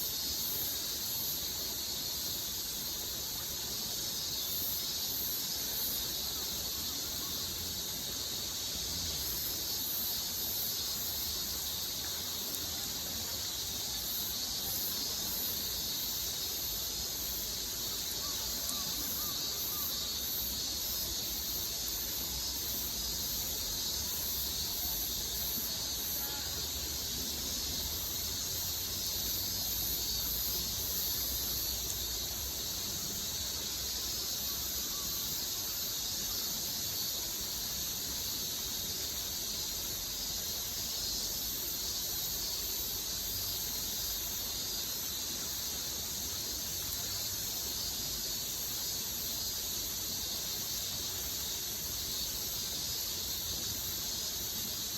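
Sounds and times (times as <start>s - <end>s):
high-pitched outdoor hiss: 0.0s - 54.9s
insect drone: 0.0s - 54.9s.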